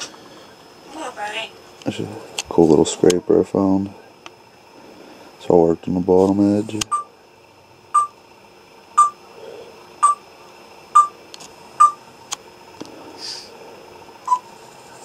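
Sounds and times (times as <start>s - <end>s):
parrot chirping: 8.0s - 8.2s, 9.0s - 9.2s, 10.0s - 10.2s.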